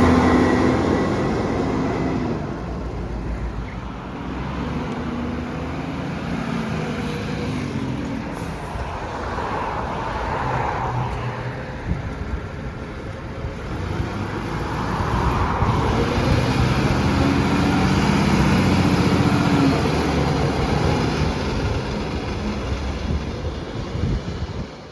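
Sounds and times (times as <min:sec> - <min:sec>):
garbage truck engines running: 0:12.4 - 0:24.9.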